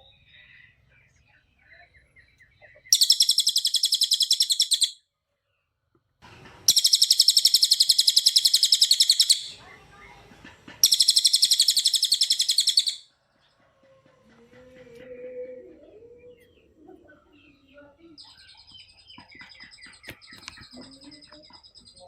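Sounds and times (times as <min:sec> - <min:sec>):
songbird fast high trills: 0:02.9 - 0:05.0, 0:06.7 - 0:09.6, 0:10.8 - 0:13.1.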